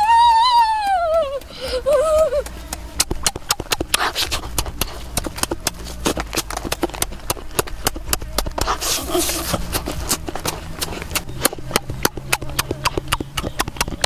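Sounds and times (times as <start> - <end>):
person chewing and lip-smacking: 0.9 - 14.0.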